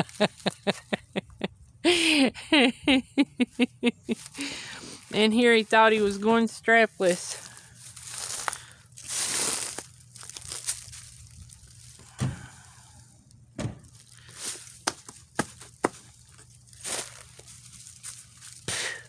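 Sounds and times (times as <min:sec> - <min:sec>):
rustling: 0:04.1 - 0:13.1, 0:13.8 - 0:19.0.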